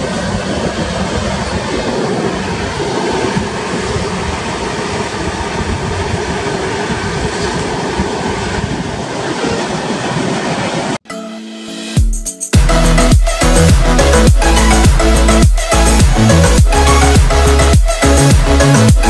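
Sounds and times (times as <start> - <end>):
train wheels running on rails: 0.0 - 11.0.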